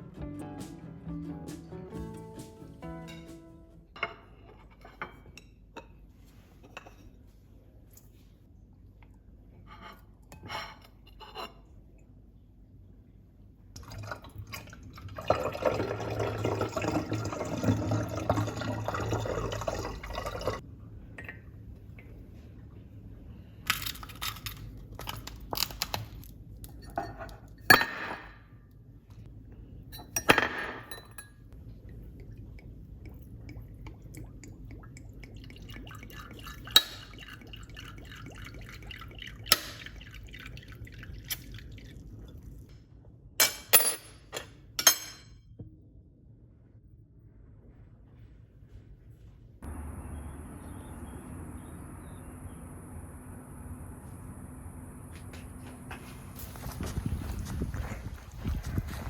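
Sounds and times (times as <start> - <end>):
glass clinking and knocking: 3.0 - 3.4, 30.0 - 31.5, 43.4 - 45.4
liquid pouring into glass: 13.8 - 20.6, 31.8 - 42.6.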